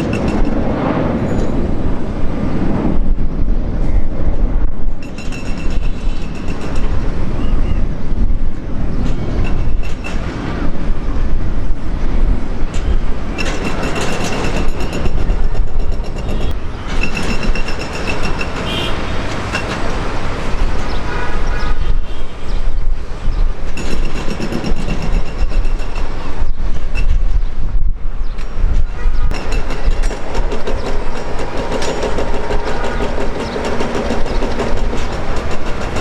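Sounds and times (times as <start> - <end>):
jet engines roaring: 0.0 - 4.5.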